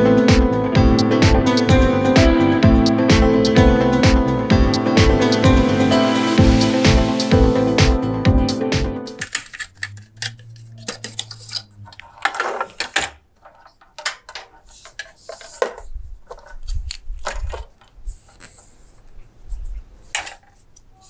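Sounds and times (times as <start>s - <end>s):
computer parts clicking and clattering: 9.2s - 18.0s.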